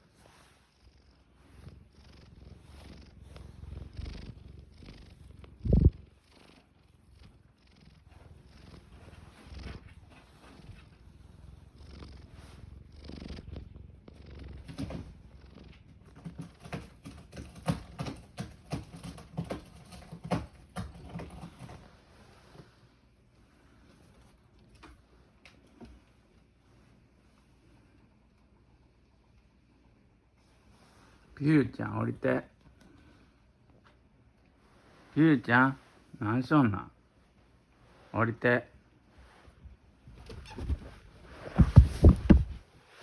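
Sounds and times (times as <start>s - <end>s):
cat purring: 0.0s - 43.0s.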